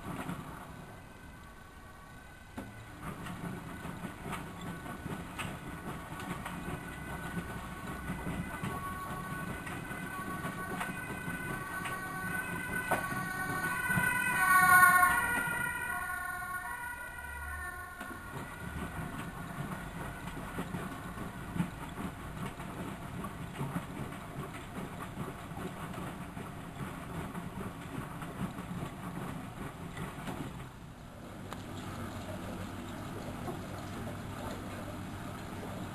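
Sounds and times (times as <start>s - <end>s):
washing machine motor whining: 2.6s - 25.3s.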